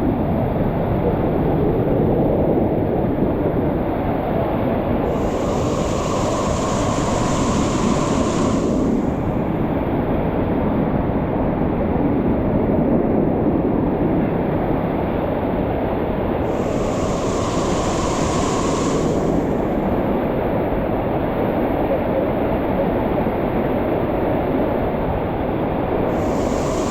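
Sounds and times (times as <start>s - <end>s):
higher hiss: 5.0s - 9.8s, 16.4s - 20.4s, 26.0s - 26.9s.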